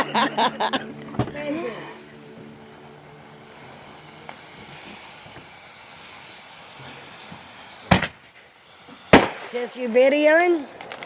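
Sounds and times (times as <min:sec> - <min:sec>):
faint hissing: 0:00.0 - 0:11.0
firework bang: 0:02.4 - 0:11.0.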